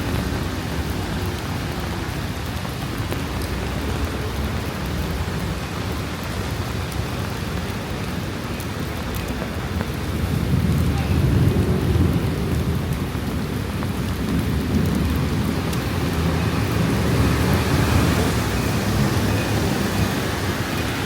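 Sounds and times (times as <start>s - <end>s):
steady rain: 0.0s - 21.0s
thunder rumbling: 8.2s - 21.0s.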